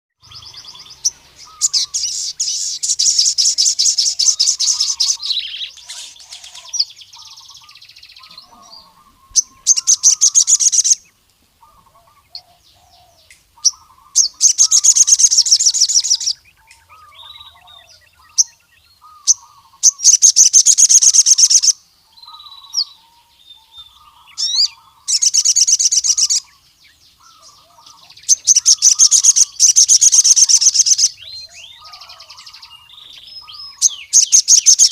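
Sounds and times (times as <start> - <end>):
bird trilling song: 0.2 - 34.9
soft low bird chirps: 0.2 - 34.9.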